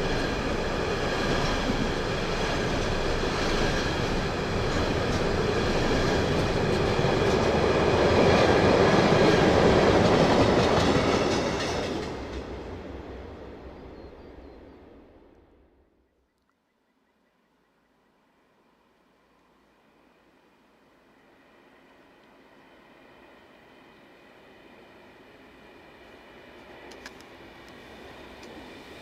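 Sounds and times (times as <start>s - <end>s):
train wheels on rails: 0.0s - 13.7s, 21.2s - 29.0s.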